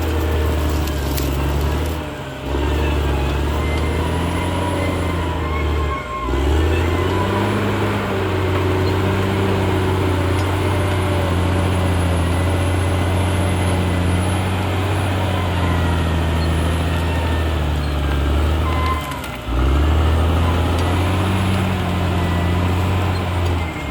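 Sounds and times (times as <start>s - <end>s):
bulldozer diesel engine running: 0.0s - 23.9s.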